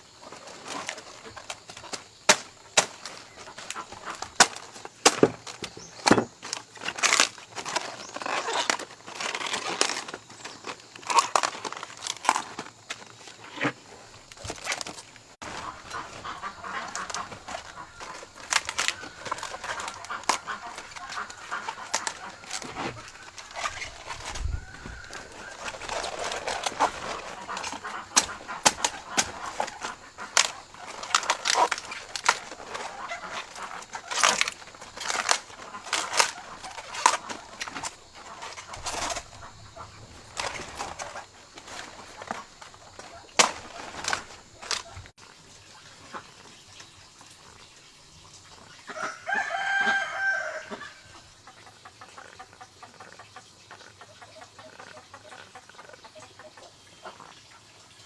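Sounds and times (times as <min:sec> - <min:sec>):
chickens clucking: 0:15.4 - 0:45.1, 0:48.9 - 0:57.2.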